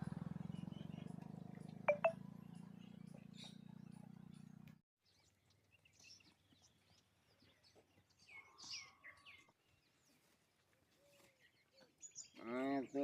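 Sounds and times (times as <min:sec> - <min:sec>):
faint bird chirps: 0:01.9 - 0:02.1.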